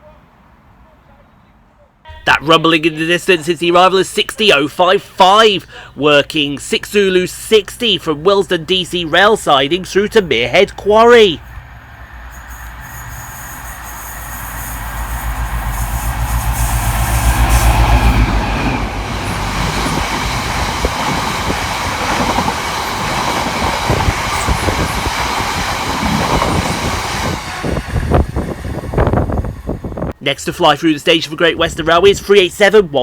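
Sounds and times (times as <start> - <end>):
diesel locomotive rumble: 2.1 - 30.2
wheel squeal: 12.3 - 16.8.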